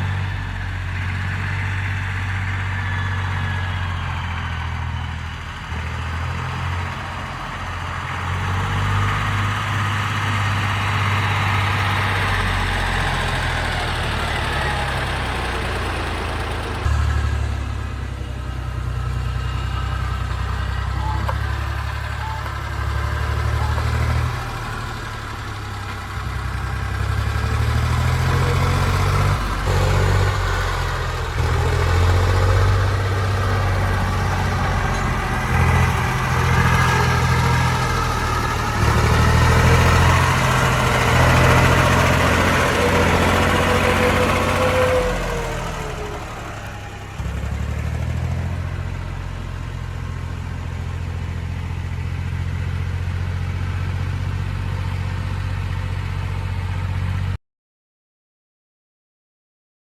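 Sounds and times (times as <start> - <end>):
tractor diesel engine running: 0.0 - 57.4.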